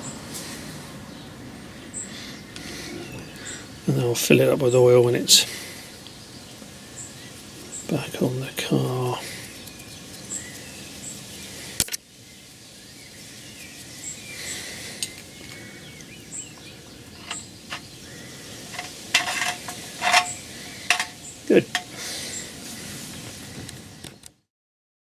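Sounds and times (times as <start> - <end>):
metal tools clinking and scraping: 17.2 - 17.9, 18.7 - 22.0.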